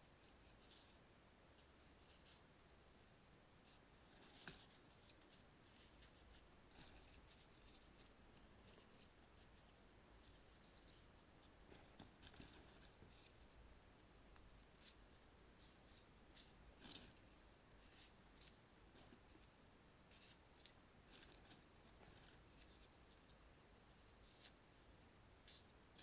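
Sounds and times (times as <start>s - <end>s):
low steady hum: 0.0s - 26.0s
paper rustling and crinkling: 14.6s - 23.3s.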